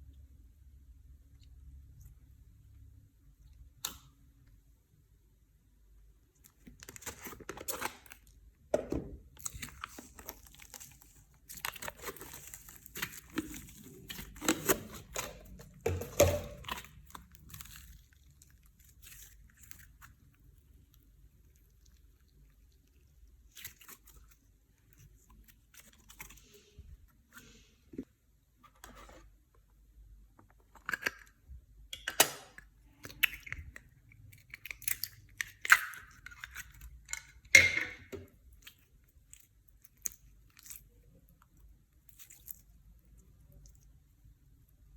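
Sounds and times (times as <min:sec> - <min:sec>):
slime squishing and crackling: 0:09.2 - 0:27.7, 0:32.7 - 0:37.4, 0:38.3 - 0:44.9.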